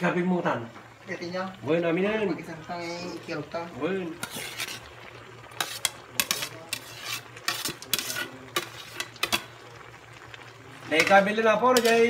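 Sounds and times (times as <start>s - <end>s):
metal utensil scraping a pan: 4.1s - 9.6s, 10.9s - 12.0s.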